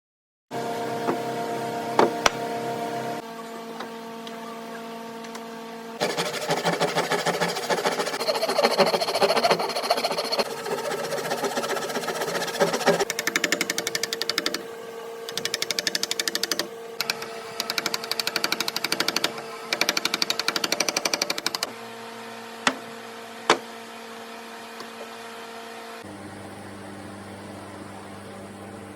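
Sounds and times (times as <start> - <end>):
power tool pulsing: 6.0 - 14.6, 15.3 - 21.7.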